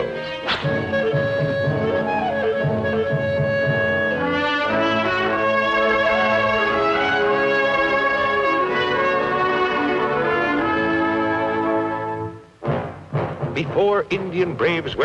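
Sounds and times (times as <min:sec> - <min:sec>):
orchestral cartoon music: 0:00.0 - 0:15.0
trumpets and trombones: 0:00.0 - 0:15.0.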